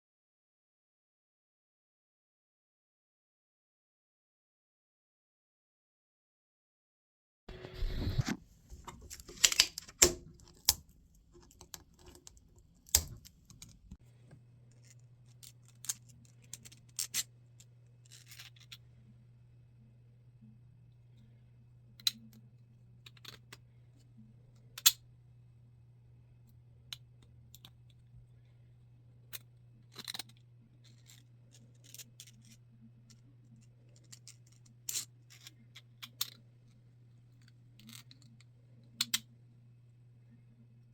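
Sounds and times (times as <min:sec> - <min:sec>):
steady low hum: 0:07.5 - 0:40.9.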